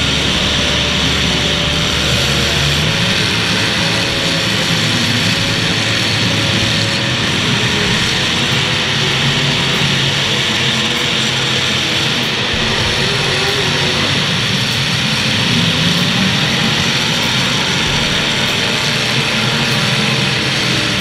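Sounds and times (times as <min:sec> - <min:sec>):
car engines running and revving: 0:00.0 - 0:21.0.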